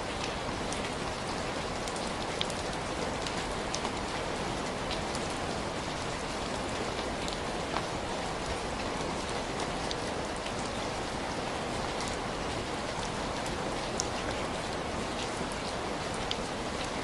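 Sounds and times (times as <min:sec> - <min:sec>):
steady rain hiss: 0:00.0 - 0:17.0
raindrop ticks: 0:01.9 - 0:04.0.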